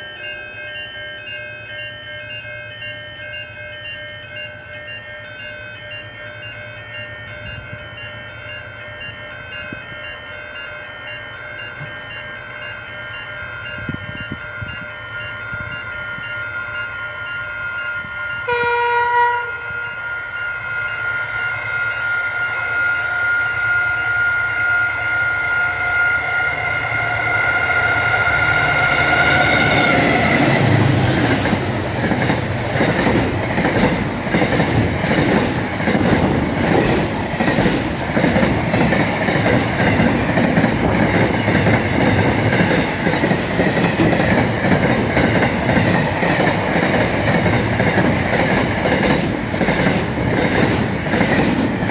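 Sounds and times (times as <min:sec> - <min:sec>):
train rumbling past: 0:00.0 - 0:51.9
train horn blast: 0:18.0 - 0:20.4, 0:21.3 - 0:31.2
wheels clacking over rail joints: 0:27.2 - 0:51.9.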